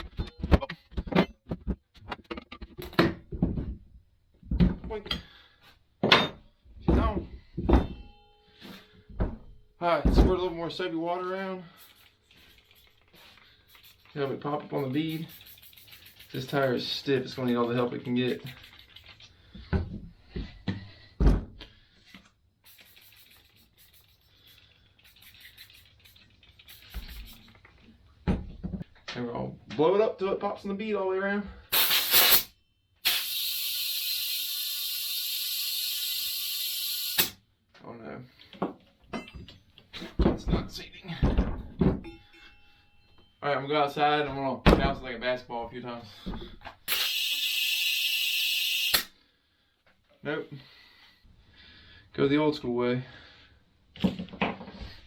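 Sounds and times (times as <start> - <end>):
heavy thump: 9.1 - 10.5, 19.7 - 21.6, 44.6 - 45.1.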